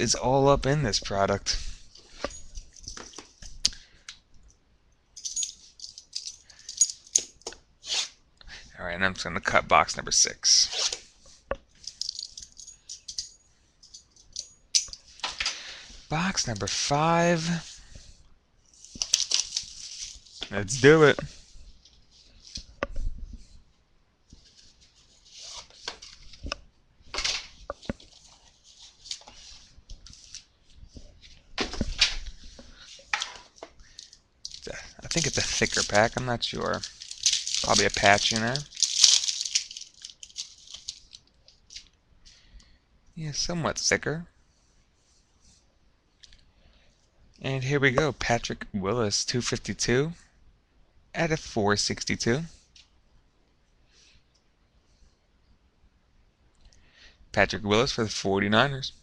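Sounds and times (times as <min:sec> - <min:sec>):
packaging rustling: 0:18.8 - 0:20.5, 0:32.7 - 0:41.9.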